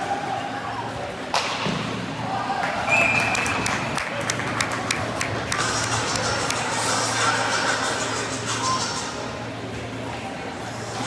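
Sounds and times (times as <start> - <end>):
arena crowd noise: 0.0 - 11.0
applause claps: 2.6 - 6.6.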